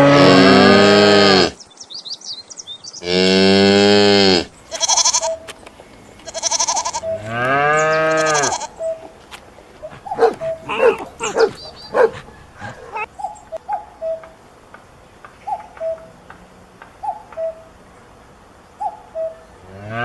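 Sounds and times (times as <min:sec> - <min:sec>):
cows mooing: 0:00.0 - 0:01.6, 0:03.0 - 0:05.4, 0:06.3 - 0:08.8.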